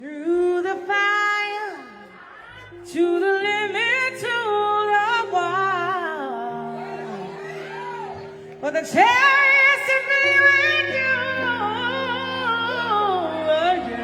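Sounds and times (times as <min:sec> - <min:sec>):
woman singing: 0:00.0 - 0:14.0
held accompaniment notes: 0:06.4 - 0:14.0.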